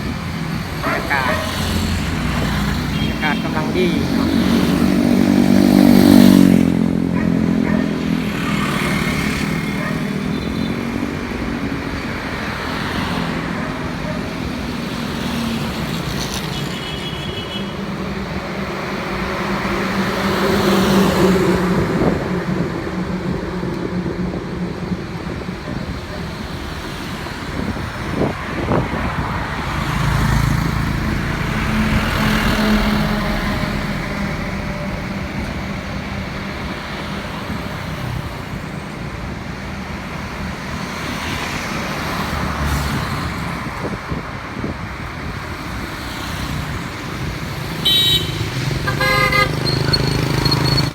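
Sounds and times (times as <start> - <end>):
road traffic passing: 0.0 - 50.9.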